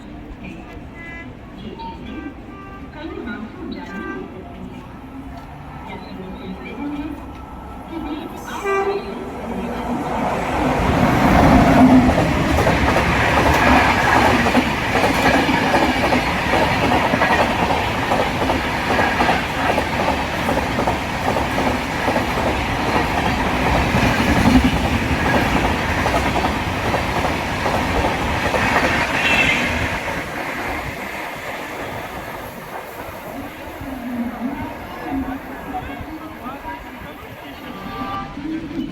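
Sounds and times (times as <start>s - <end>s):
train wheels clattering: 10.8s - 33.1s.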